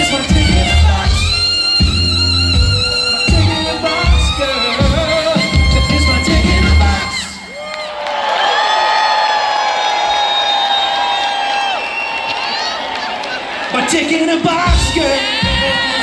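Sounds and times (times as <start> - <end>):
live band playing instrumental: 0.0 - 7.6, 14.4 - 16.0.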